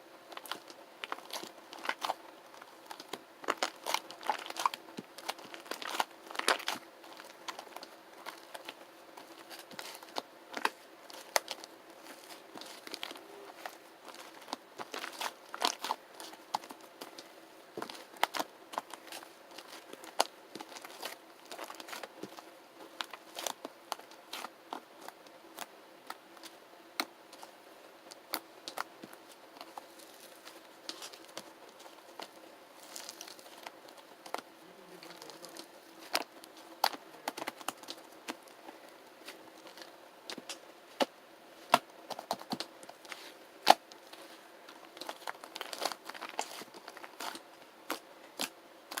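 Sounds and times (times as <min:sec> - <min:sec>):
slime squished by hand: 0:00.4 - 0:27.5.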